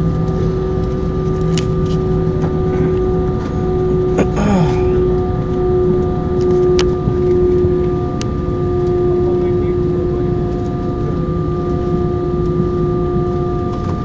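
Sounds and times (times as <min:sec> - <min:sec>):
aircraft cabin drone: 0:00.0 - 0:14.0.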